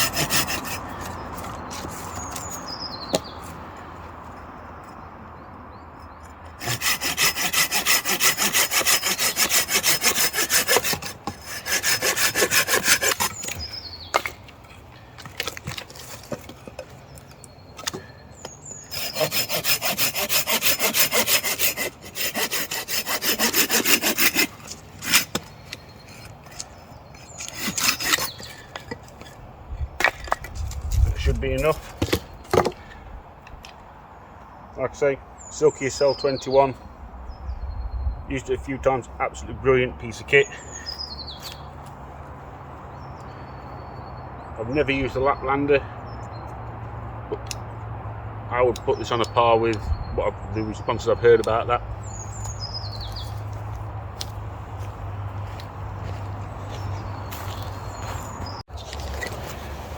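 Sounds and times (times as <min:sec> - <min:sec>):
pruning saw cutting wood: 0:00.0 - 0:02.6, 0:06.4 - 0:14.4, 0:18.8 - 0:29.3.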